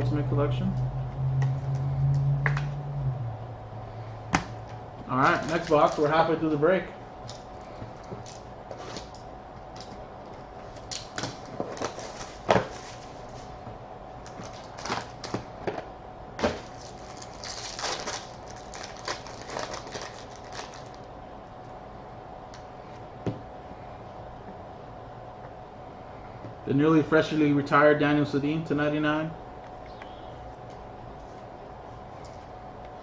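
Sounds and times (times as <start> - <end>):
packaging crinkling: 5.2 - 6.4, 10.8 - 13.5, 14.2 - 15.5, 16.4 - 21.1.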